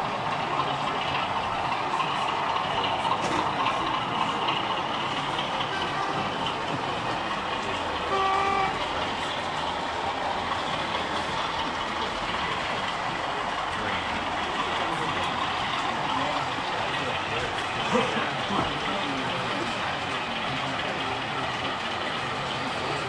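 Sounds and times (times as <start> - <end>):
busy exhibition hall noise: 0.0 - 23.0
model locomotive horn blast: 5.6 - 6.8, 8.0 - 9.1.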